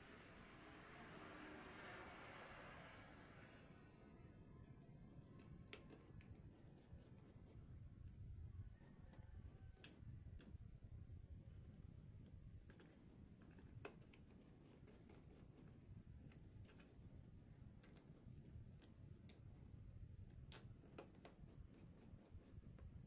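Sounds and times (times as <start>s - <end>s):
low room hum: 0.0s - 23.0s
faint small clicks and taps: 4.6s - 6.4s, 8.8s - 10.6s, 12.2s - 14.4s, 16.3s - 17.0s, 17.8s - 19.5s, 20.2s - 21.9s.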